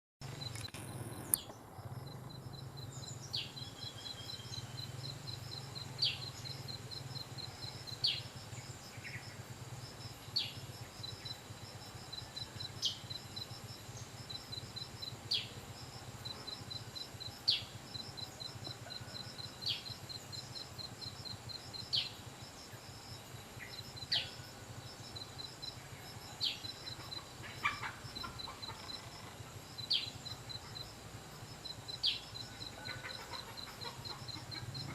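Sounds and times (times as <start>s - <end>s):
lower bird calls: 23.6s - 24.6s.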